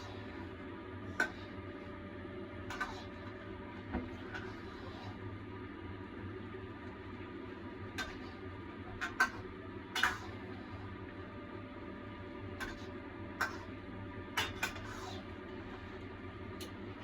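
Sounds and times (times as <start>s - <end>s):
steady low hum: 0.0s - 17.0s
spatula scraping a wok: 2.7s - 3.2s, 4.1s - 5.3s, 14.4s - 15.3s.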